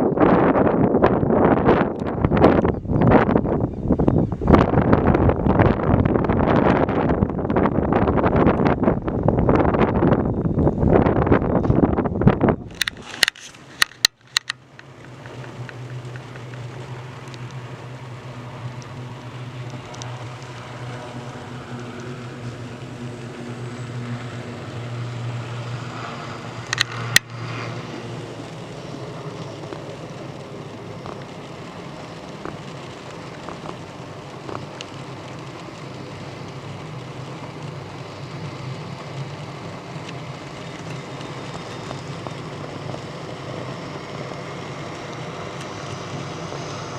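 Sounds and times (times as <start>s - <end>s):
continuous whooshing noise: 0.0s - 46.9s
helicopter low hum: 0.0s - 46.9s
sharp crack: 12.6s - 46.9s.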